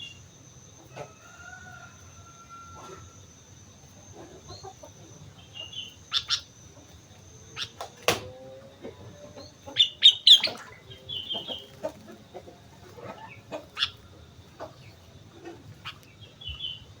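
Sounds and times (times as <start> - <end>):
bird chirping: 3.8 - 17.0.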